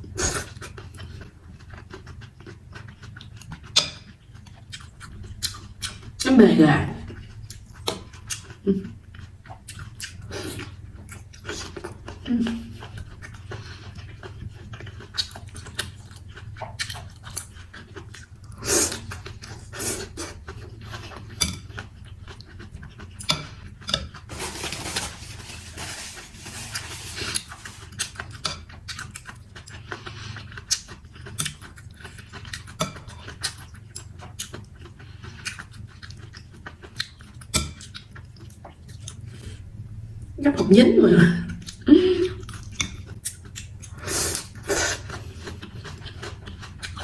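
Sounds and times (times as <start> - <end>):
chewing: 0.3 - 6.3, 7.1 - 24.3, 25.6 - 39.6, 42.4 - 47.0
slurping: 24.3 - 28.2.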